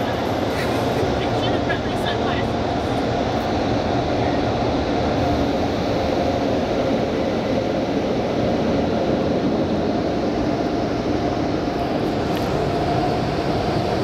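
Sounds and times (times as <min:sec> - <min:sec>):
car wash machinery rushing: 0:00.0 - 0:14.0.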